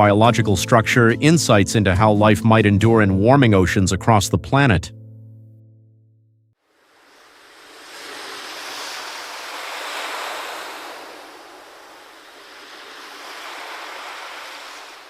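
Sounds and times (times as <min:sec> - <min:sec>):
ocean waves washing in: 0:06.6 - 0:15.0.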